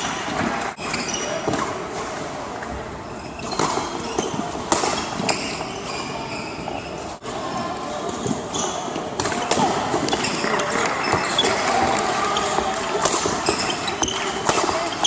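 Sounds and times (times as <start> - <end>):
shoes squeaking on court floor: 0.0 - 7.2, 8.1 - 15.0
echoing din of sports hall: 0.0 - 15.0
rackets striking shuttlecock: 3.4 - 6.2, 8.2 - 15.0.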